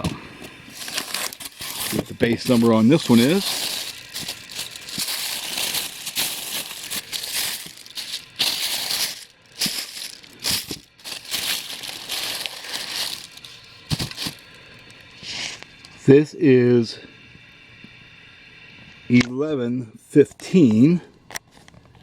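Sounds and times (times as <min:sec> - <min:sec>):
packaging crinkling and rustling: 0:00.0 - 0:15.8.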